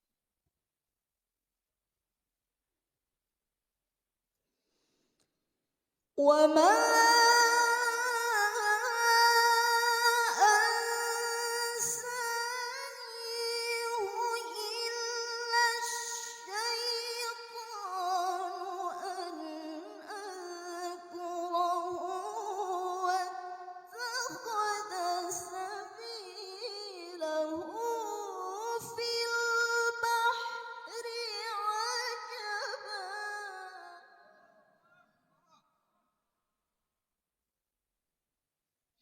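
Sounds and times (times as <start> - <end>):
woman reciting melodically: 6.2 - 34.5.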